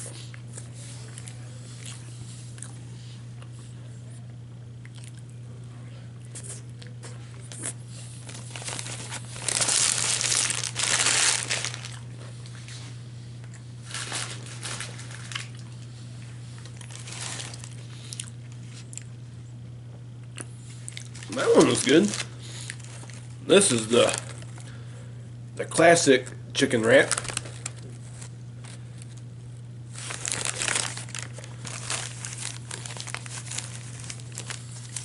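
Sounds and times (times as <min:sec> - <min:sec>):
crunching from eating: 0:00.0 - 0:02.8, 0:04.8 - 0:05.4, 0:06.2 - 0:19.2, 0:19.9 - 0:24.9, 0:26.2 - 0:35.0
steady low hum: 0:00.0 - 0:35.0
paper wrapper crinkling: 0:08.2 - 0:12.0, 0:13.8 - 0:15.7, 0:16.6 - 0:17.9, 0:20.9 - 0:24.7, 0:26.6 - 0:29.2, 0:29.9 - 0:35.0.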